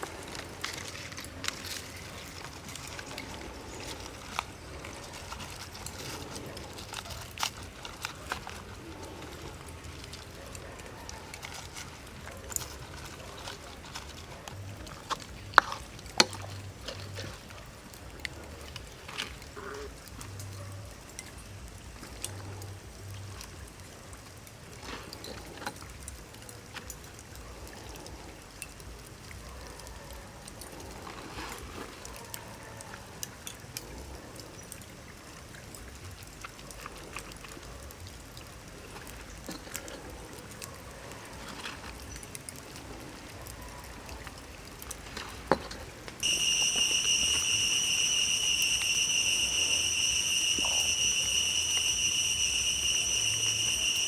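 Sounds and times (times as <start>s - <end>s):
water trickling and pouring: 0.0s - 54.0s
insect chirring: 46.2s - 54.0s.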